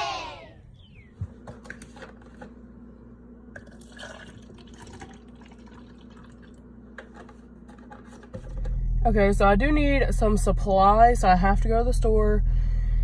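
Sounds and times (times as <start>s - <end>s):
crowd cheering: 0.0s - 0.7s
steady low hum: 0.0s - 13.0s.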